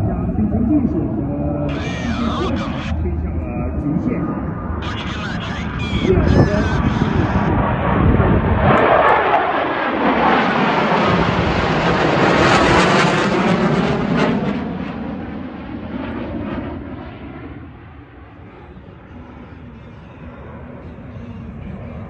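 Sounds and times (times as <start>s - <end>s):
fighter jets roaring past: 0.0s - 22.0s.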